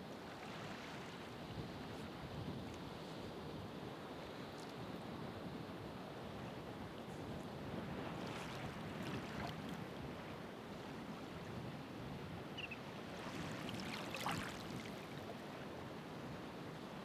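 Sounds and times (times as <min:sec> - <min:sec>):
ocean waves washing on shore: 0:06.2 - 0:17.0.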